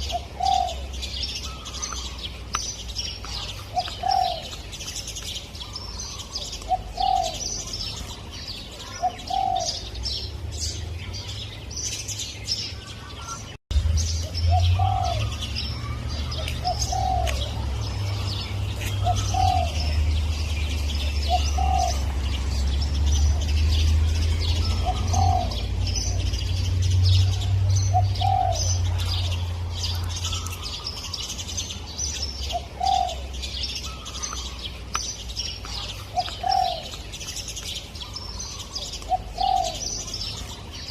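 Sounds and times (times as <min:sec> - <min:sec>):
dove cooing: 0:00.0 - 0:02.2, 0:03.2 - 0:04.6, 0:05.6 - 0:10.1, 0:14.5 - 0:22.6, 0:24.4 - 0:26.4, 0:27.2 - 0:30.9, 0:32.4 - 0:34.6, 0:35.7 - 0:37.0, 0:38.0 - 0:40.6
small birds chirping: 0:00.0 - 0:40.9.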